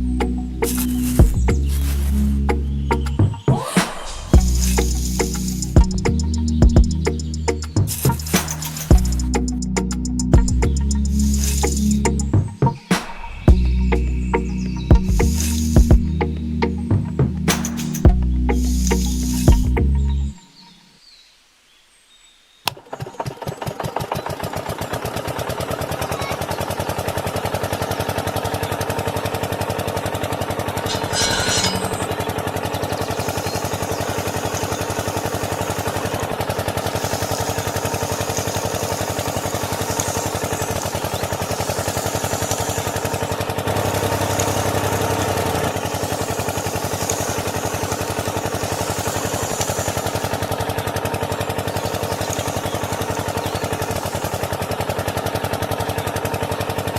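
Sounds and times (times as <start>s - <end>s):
small engine running: 0.0s - 20.2s, 22.8s - 56.9s
brief rattle: 7.0s - 9.4s, 17.5s - 18.1s, 30.9s - 32.4s.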